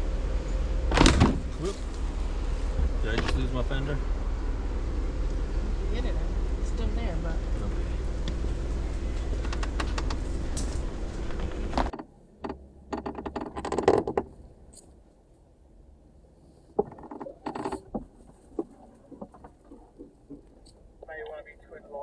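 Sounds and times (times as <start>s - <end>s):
car engine running: 0.0s - 14.9s
mechanical clicks and knocks: 11.8s - 14.3s.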